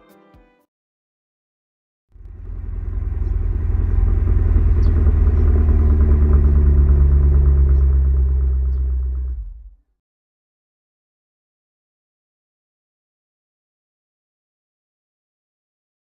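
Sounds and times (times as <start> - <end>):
car engine running: 2.2 - 9.8.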